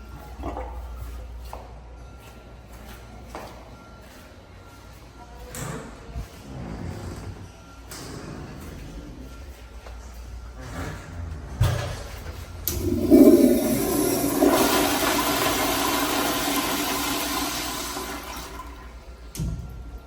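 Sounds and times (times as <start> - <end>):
toilet flush trigger click: 12.7 - 18.7
toilet water rushing: 12.7 - 19.0.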